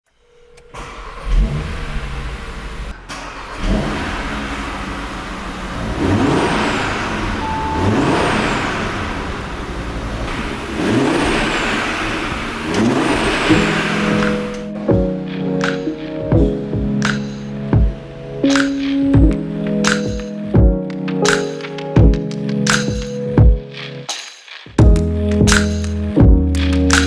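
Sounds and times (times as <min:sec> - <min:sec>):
car engine starting and revving: 0:00.1 - 0:20.0.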